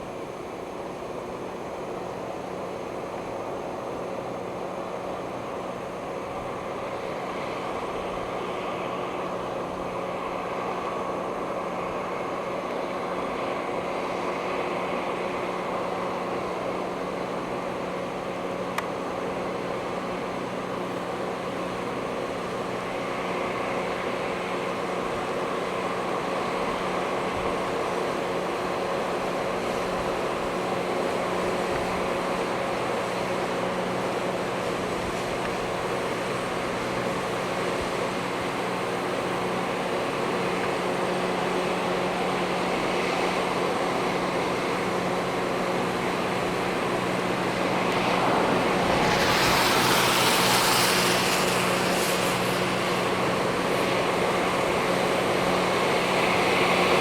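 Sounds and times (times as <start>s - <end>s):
steady engine drone: 0.0s - 57.0s
rushing grinding hiss: 28.9s - 57.0s.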